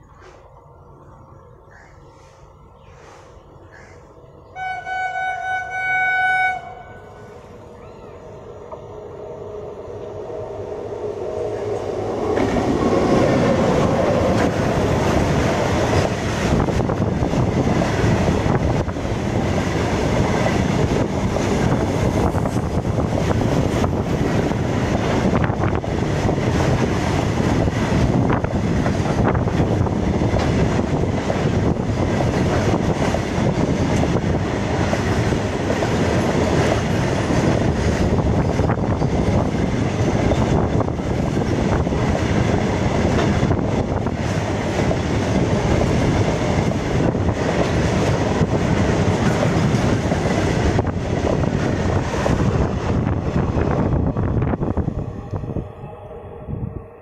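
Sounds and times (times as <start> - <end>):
freight train rumbling past: 0.0 - 57.0
wheels clattering on rails: 11.6 - 53.2.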